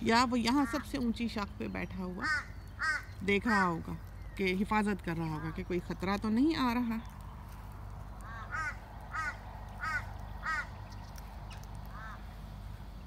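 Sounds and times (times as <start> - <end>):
bird squawking: 0.3 - 6.0, 8.2 - 12.4.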